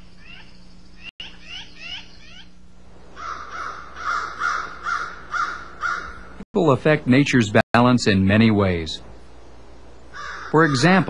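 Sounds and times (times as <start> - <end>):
harsh repeated bird call: 0.0 - 6.4, 10.1 - 11.0
high down-slurred bird chirps: 0.0 - 6.4.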